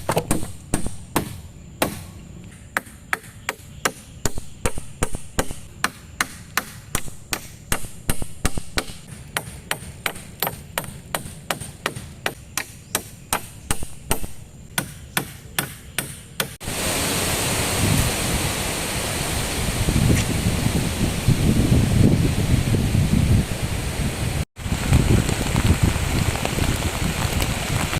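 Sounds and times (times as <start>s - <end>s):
chopping wood: 0.0s - 2.2s, 2.8s - 16.6s
wind: 0.0s - 27.9s
heavy rain: 16.6s - 27.9s.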